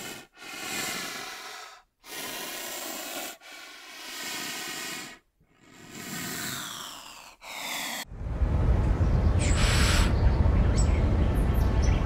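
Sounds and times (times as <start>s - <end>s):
rhinoceros breathing hard: 0.0s - 8.1s, 9.4s - 10.2s.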